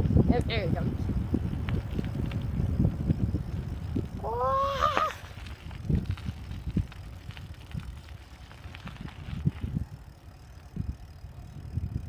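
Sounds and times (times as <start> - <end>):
wind rumble on microphone: 0.0 - 12.0
bike knocks and rattles: 1.4 - 12.0
person shouting: 4.2 - 5.2.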